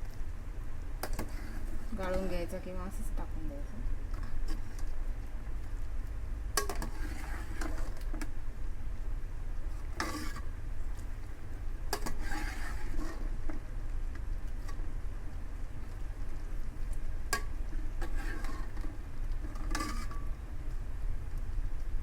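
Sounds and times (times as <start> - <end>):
spoon scraping a cooking pan: 1.0 - 2.5, 6.6 - 8.3, 9.8 - 10.5, 11.9 - 13.4, 17.3 - 20.4.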